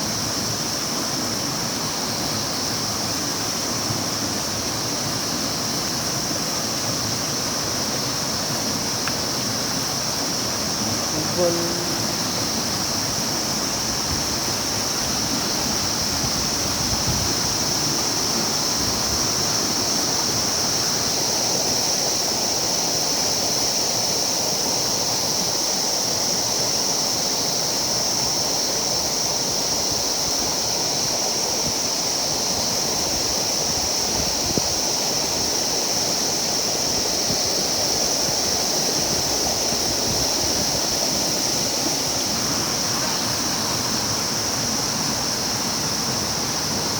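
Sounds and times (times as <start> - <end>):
river water rushing: 0.0 - 29.2, 34.8 - 46.9
high-pitched hiss: 0.0 - 46.9.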